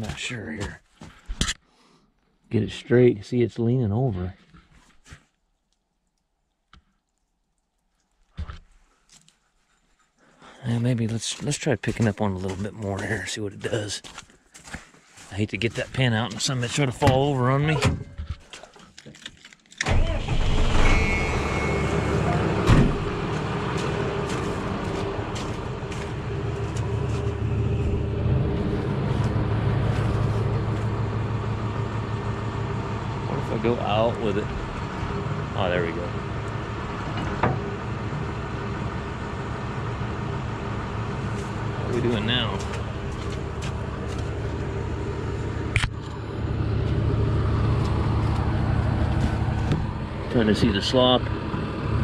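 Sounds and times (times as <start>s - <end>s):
engine running steadily: 19.8s - 52.0s.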